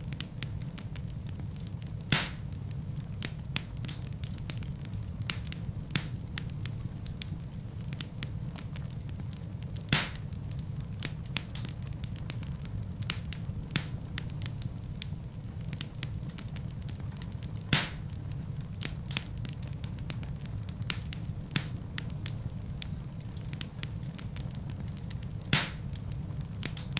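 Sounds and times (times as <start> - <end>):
low rumble of flames: 0.0 - 26.9
sharp fire pops: 0.0 - 26.9
wood fire crackling: 0.0 - 26.9.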